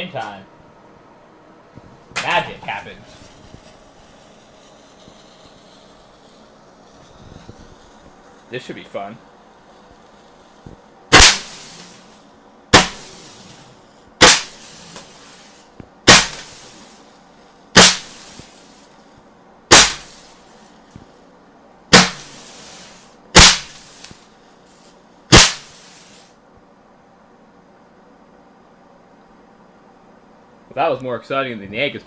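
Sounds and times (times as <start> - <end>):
firework bangs with hiss: 2.2 - 21.2, 21.9 - 26.4.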